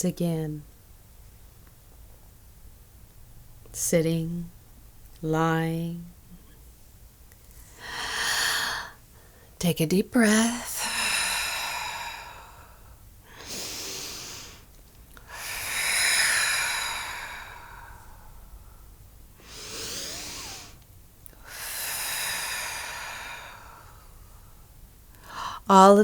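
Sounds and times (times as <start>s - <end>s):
woman breathing deeply: 7.5s - 9.6s, 10.5s - 25.7s.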